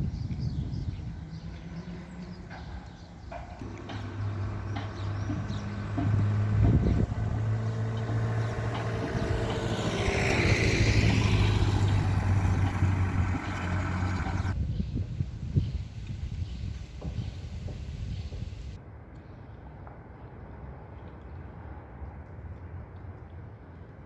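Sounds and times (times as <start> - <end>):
vehicle engine humming: 1.0 - 14.6
vehicle passing by: 3.6 - 14.6.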